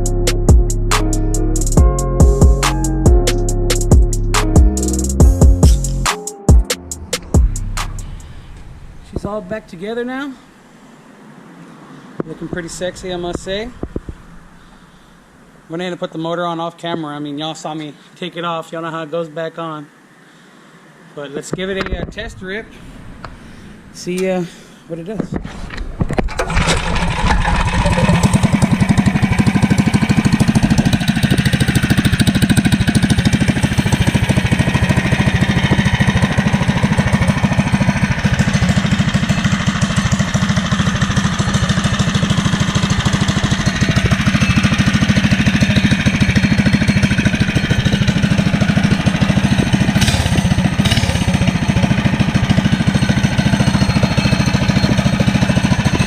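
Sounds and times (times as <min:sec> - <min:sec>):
motorcycle engine running: 0:00.0 - 0:06.0, 0:06.8 - 0:08.3, 0:26.3 - 0:56.0.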